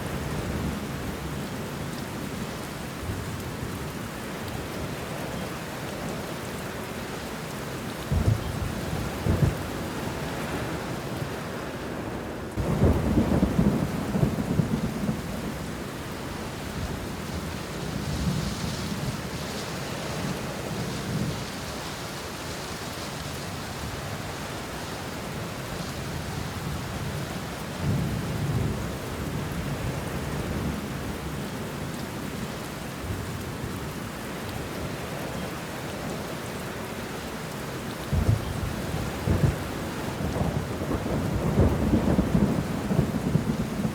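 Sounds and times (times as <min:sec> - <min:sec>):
rain falling on leaves: 0:00.0 - 0:43.9
low thunder rumbling: 0:12.6 - 0:15.9, 0:38.1 - 0:43.9.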